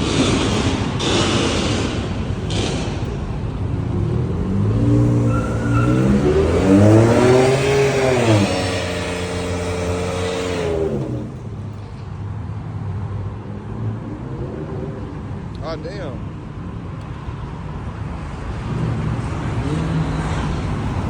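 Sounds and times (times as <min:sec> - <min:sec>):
car engine revving: 0:00.0 - 0:11.8.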